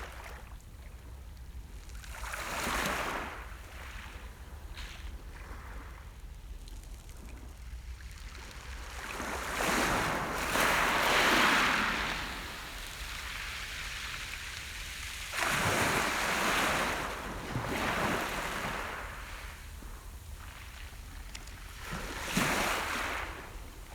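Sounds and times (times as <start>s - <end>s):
waves breaking on shore: 8.9s - 21.0s, 21.6s - 23.9s.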